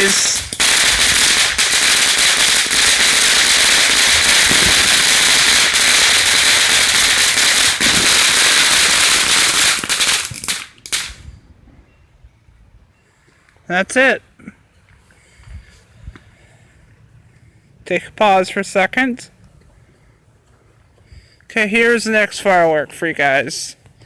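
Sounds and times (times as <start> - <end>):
firework crackling pops: 0.0 - 11.3.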